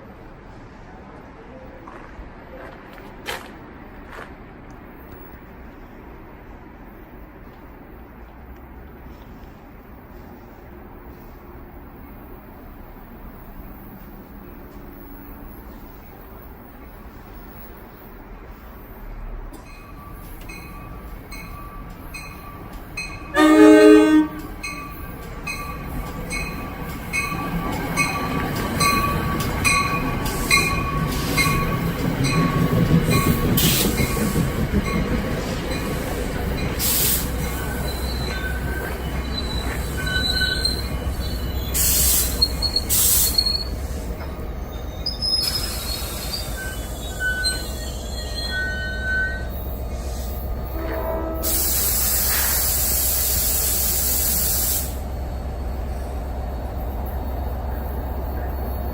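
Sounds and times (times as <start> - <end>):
train rumble: 0.0 - 58.9
high wheel squeals: 19.6 - 53.0
train horn blast: 23.2 - 24.7, 50.6 - 52.5.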